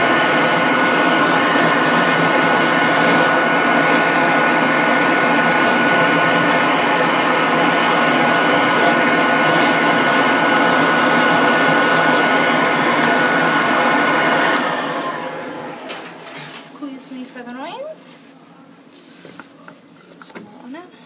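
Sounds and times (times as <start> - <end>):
dog grooming dryer whining: 0.0 - 16.7.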